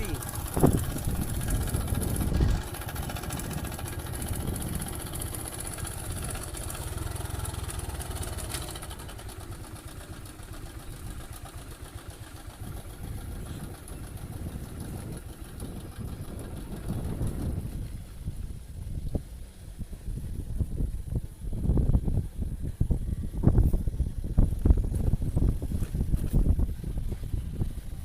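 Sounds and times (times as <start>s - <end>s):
motorcycle engine rumbling: 0.0s - 28.0s.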